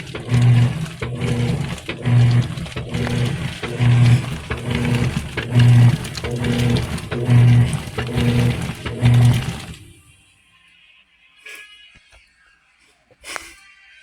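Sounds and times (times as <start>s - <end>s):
washing machine agitating: 0.0s - 10.2s.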